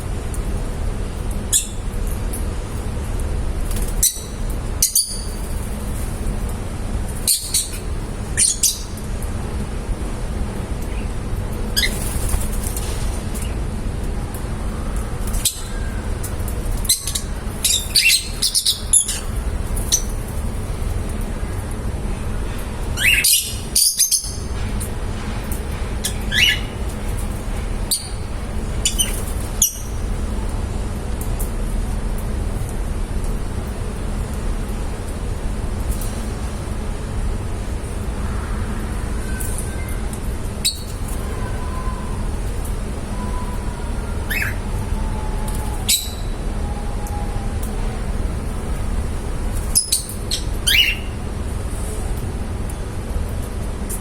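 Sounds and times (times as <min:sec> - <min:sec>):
low background hum: 0:00.0 - 0:54.0
low background rumble: 0:00.0 - 0:54.0
lovebirds chirping: 0:16.8 - 0:20.2, 0:40.6 - 0:46.4, 0:49.8 - 0:51.2.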